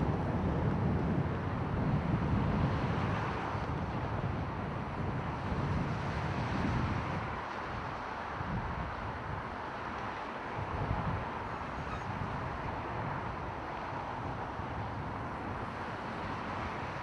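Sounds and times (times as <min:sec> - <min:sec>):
wind buffeting microphone: 0:10.5 - 0:17.0.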